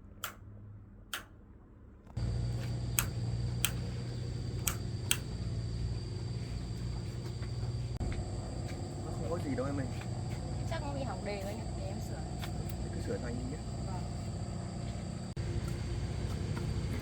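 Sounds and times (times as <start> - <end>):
sharp clicks: 0.2 - 0.4, 2.2 - 5.4
pickup truck engine humming: 2.2 - 17.0.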